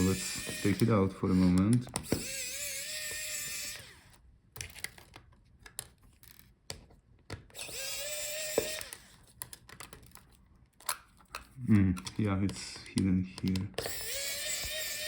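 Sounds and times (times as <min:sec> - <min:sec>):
electric screwdriver whirring: 0:00.0 - 0:04.2, 0:07.5 - 0:09.2, 0:13.4 - 0:15.0.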